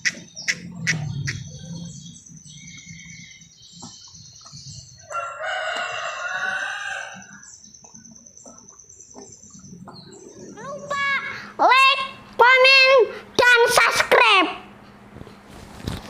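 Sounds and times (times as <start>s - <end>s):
bird twittering: 0.0s - 12.4s
rooster crowing: 5.0s - 7.5s.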